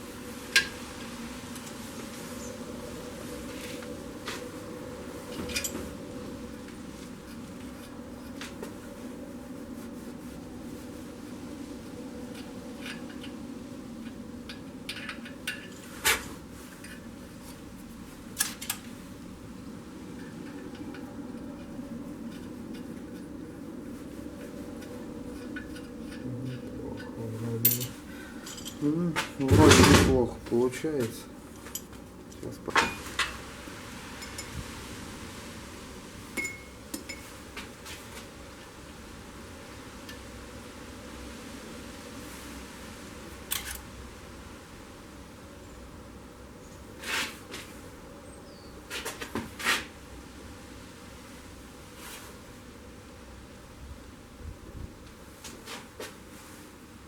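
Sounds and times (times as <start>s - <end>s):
steady low hum: 0.0s - 47.0s
metal tools clinking: 25.4s - 28.9s.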